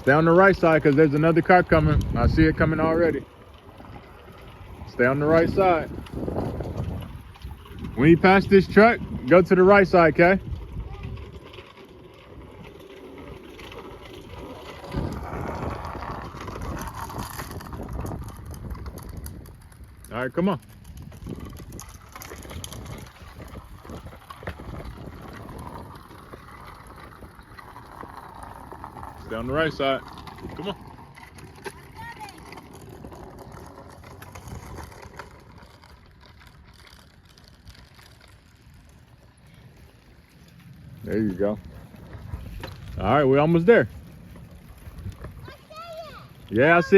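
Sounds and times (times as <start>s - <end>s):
wind over microphone: 0.0s - 37.0s, 38.7s - 46.9s
bicycle tyres on pavement: 0.0s - 46.9s
road noise: 0.0s - 46.9s.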